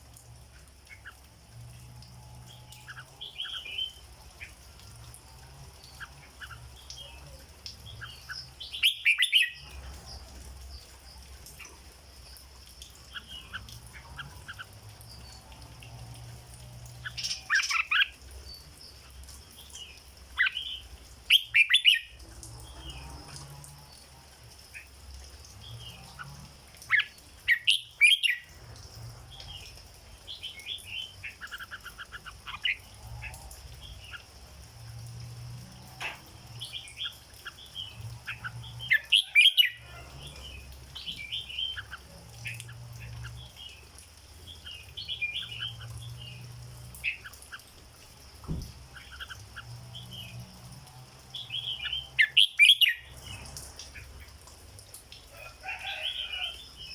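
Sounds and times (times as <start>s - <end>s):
bird singing chirping phrases: 5.8s - 10.3s, 12.8s - 23.2s, 25.6s - 28.6s, 36.4s - 47.8s, 51.2s - 54.3s.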